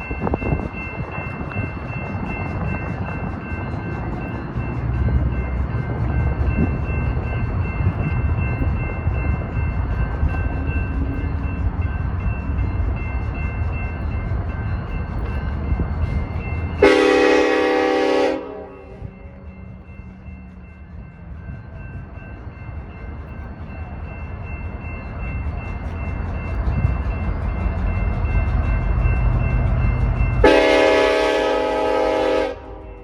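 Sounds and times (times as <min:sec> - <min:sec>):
train rumble: 0:00.0 - 0:33.0
locomotive horn blast: 0:16.8 - 0:19.1, 0:30.4 - 0:33.0.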